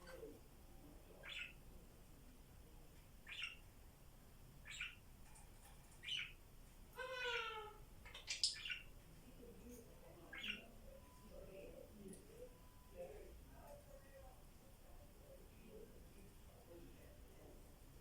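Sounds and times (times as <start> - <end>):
parrots chirping and calling: 1.2 - 1.6, 3.2 - 3.7, 4.6 - 5.0, 5.9 - 8.9, 10.3 - 10.7.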